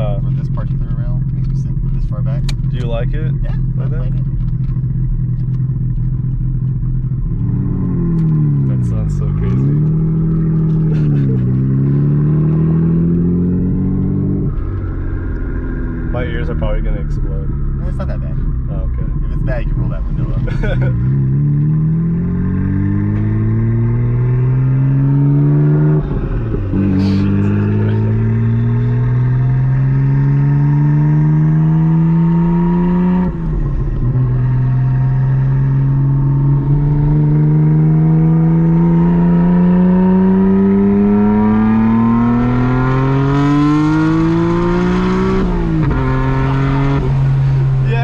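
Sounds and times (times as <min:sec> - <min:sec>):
car engine accelerating hard: 0:00.0 - 0:48.0.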